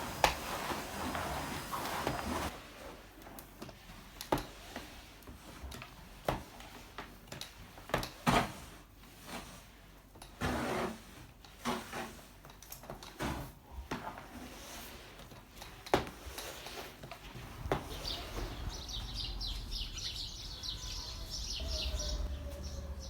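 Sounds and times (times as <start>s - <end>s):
scraping and rustling: 0.0s - 23.0s.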